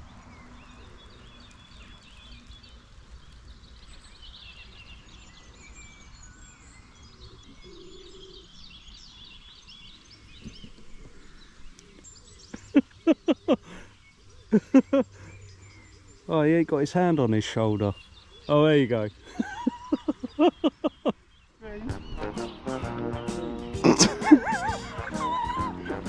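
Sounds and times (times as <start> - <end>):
small birds chirping: 20.4 - 26.0.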